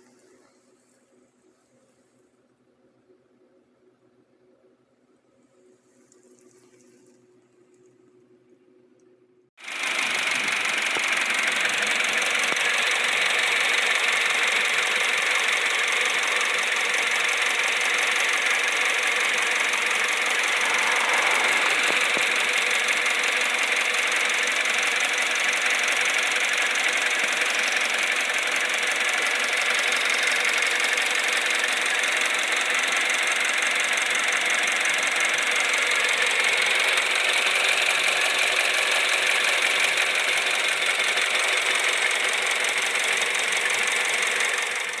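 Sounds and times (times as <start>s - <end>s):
car engine idling: 9.6s - 45.0s.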